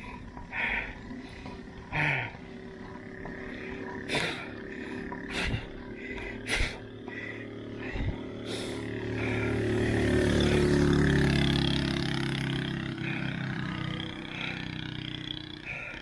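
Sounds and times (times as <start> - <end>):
wind rumble: 0.0 - 10.1
vehicle engine passing by: 0.0 - 16.0.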